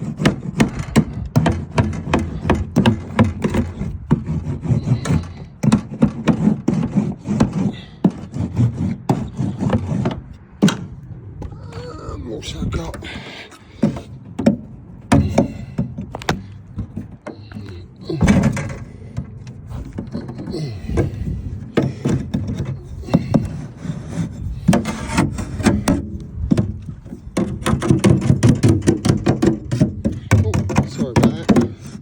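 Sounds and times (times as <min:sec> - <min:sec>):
knocks and taps: 0:25.6 - 0:32.0.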